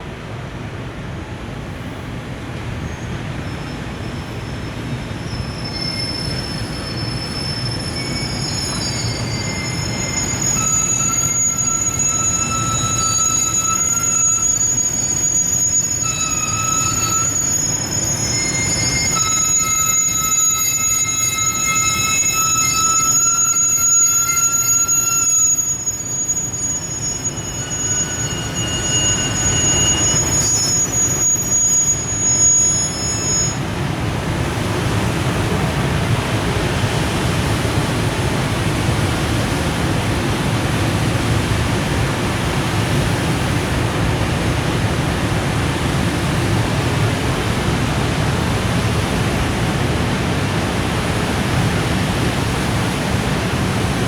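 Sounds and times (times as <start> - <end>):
low train rumble: 0.0 - 54.0
train wheels squealing: 1.8 - 54.0.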